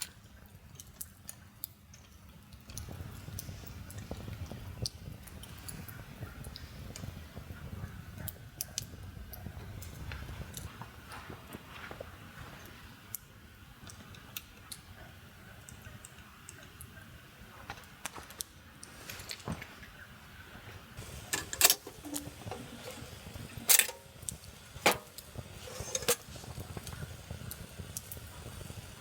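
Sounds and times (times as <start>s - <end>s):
sharp clicks and knocks: 21.0s - 27.0s.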